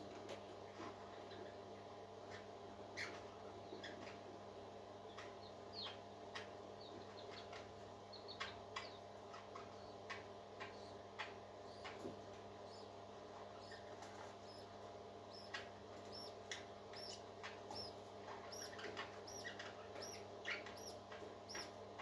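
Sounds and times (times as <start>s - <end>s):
steady low hum: 3.4s - 22.0s
parakeets chirping and clicking: 8.3s - 12.1s, 15.3s - 22.0s.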